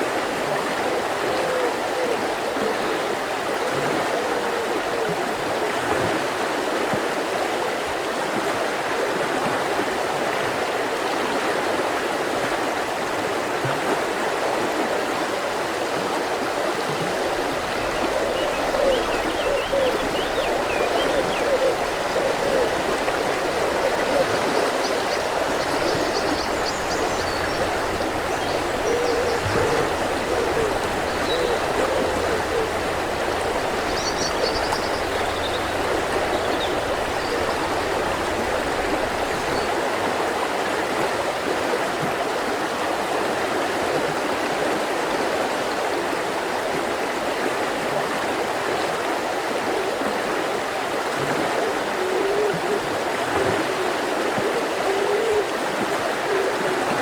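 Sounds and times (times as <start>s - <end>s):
river flowing over rocks: 11.3s - 44.9s
low hooting calls: 17.1s - 39.8s.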